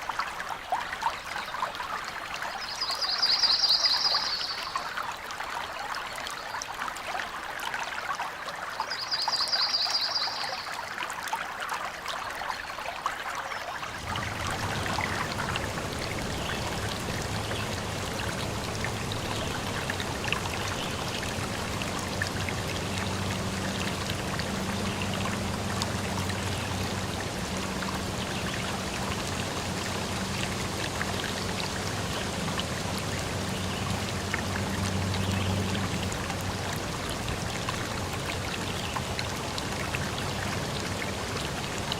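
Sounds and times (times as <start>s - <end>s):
deep rush of water: 0.0s - 41.9s
stream trickling: 0.0s - 41.9s
faint low hum: 13.9s - 41.9s.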